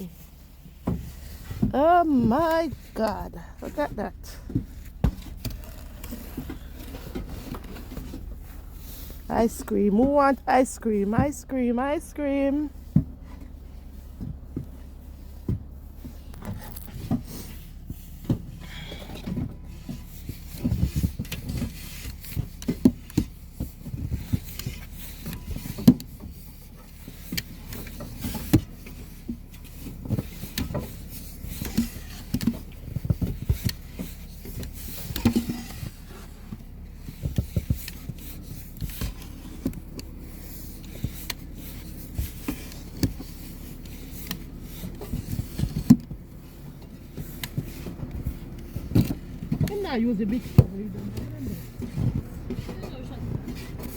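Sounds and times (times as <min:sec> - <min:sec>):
snow shovel scraping snow: 0:16.1 - 0:18.1.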